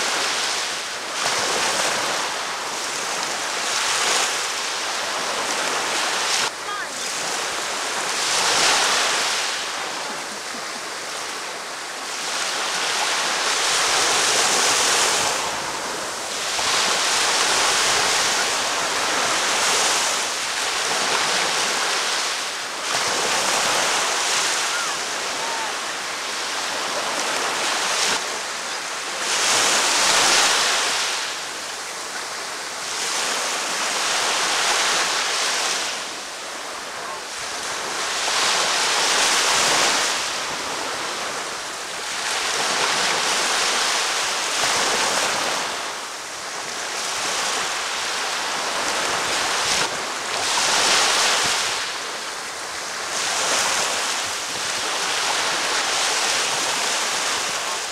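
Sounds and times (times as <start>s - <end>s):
ocean waves breaking on beach: 0.0s - 57.9s.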